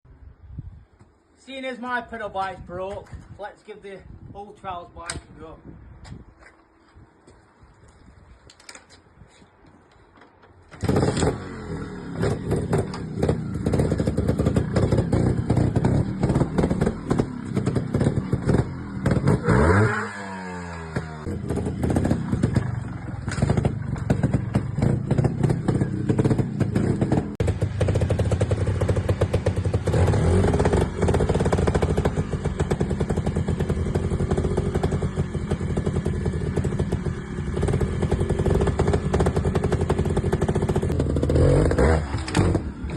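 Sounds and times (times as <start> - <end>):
motorcycle engine revving: 10.7 - 42.9.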